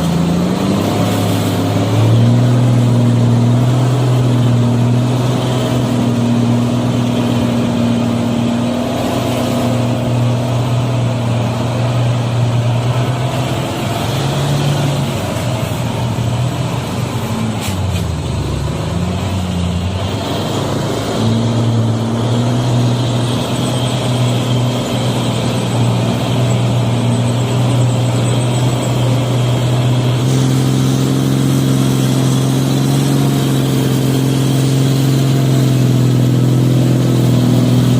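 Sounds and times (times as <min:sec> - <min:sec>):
heavy truck engine running: 0:00.0 - 0:37.9.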